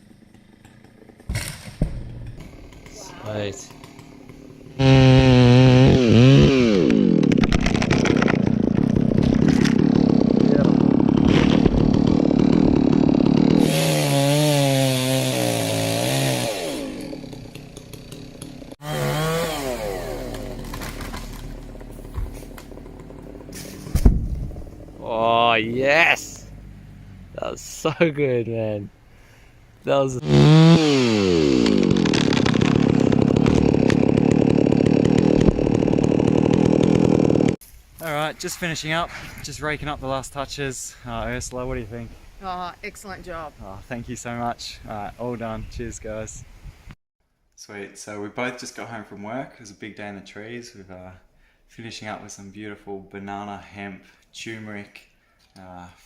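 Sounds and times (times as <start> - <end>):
chainsaw running at high revs: 2.3 - 25.6, 30.2 - 37.6.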